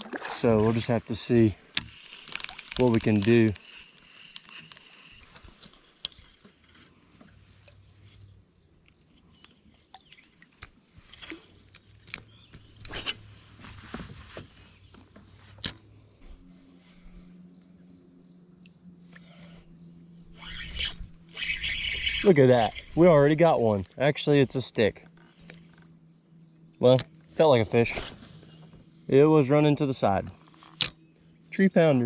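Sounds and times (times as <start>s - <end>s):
insects chirring: 0.0s - 32.0s.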